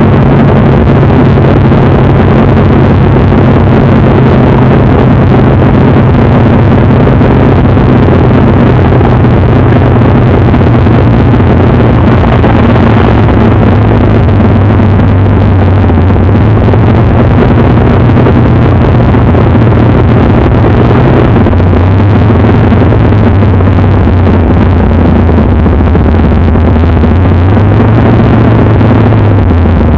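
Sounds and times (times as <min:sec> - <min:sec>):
loud car engine running: 0:00.0 - 0:29.9.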